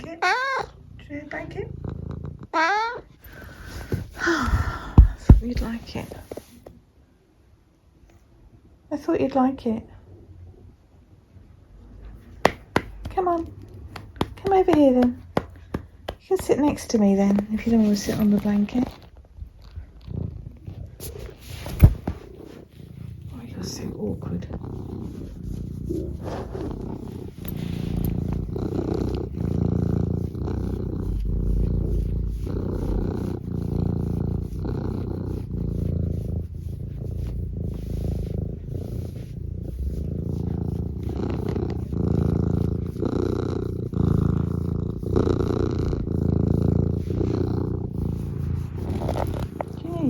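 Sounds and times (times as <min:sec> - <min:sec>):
cat purring: 0:00.0 - 0:06.8, 0:10.0 - 0:50.0.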